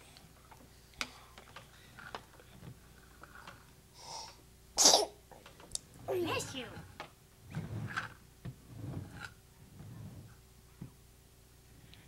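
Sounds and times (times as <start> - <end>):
baby sneezing: 4.8 - 5.2.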